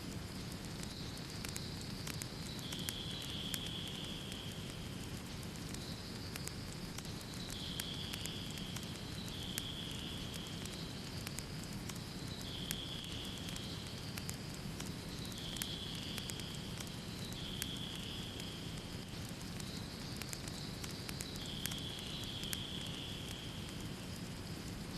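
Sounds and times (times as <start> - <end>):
sharp pops of fire: 0.0 - 24.9
wood fire crackling: 0.0 - 24.9.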